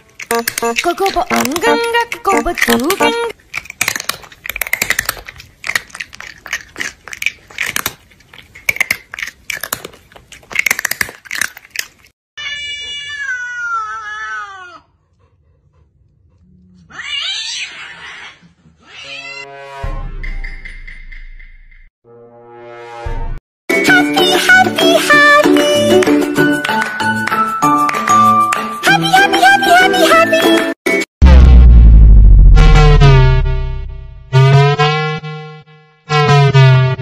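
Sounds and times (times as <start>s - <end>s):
cat crunching food: 0.0s - 12.1s
cat crying harshly: 12.4s - 14.9s, 16.9s - 19.5s
cat meowing: 12.4s - 14.9s
cat yowl: 12.4s - 14.9s.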